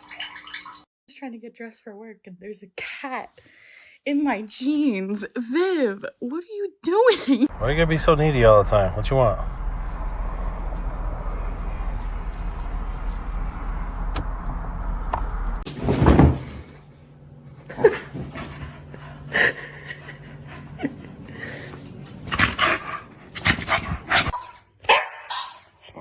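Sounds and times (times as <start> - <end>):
steady background hum: 12.2 - 24.3
dog barking and yipping: 24.3 - 25.7.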